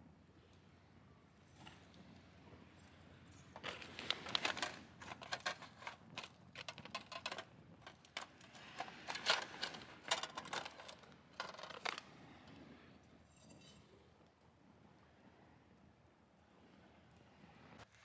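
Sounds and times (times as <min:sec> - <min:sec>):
small hard objects clattering: 0:03.4 - 0:12.1.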